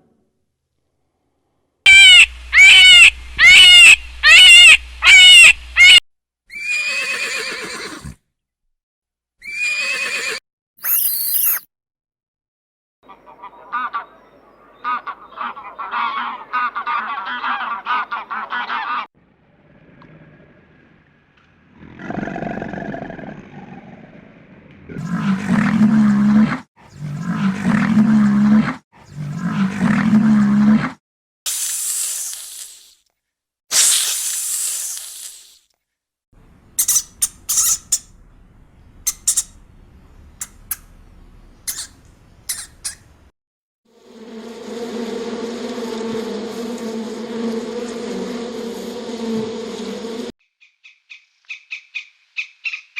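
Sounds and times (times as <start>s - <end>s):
birds calling rapidly: 1.9s - 6.0s, 36.6s - 43.3s
rough animal sound: 21.7s - 31.0s, 36.8s - 38.2s, 39.0s - 39.6s, 41.6s - 43.2s.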